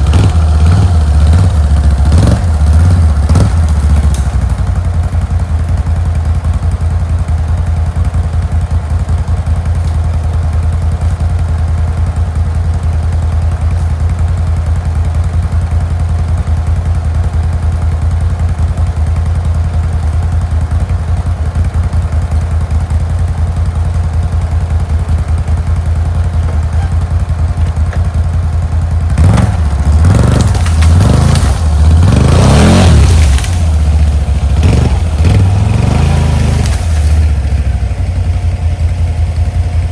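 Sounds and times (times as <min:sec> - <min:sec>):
atv engine idling and revving: 0:00.0 - 0:39.9.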